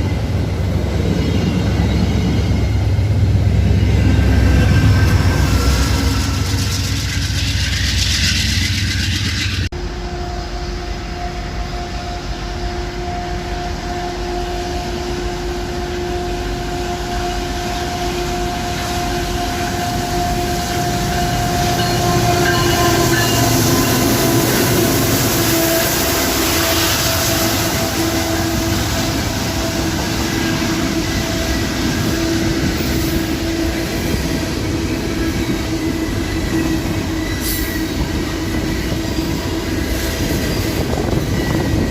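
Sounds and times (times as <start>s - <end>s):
train wheels rumbling on rails: 0.0s - 41.9s
wheels squealing on rail: 0.0s - 41.9s.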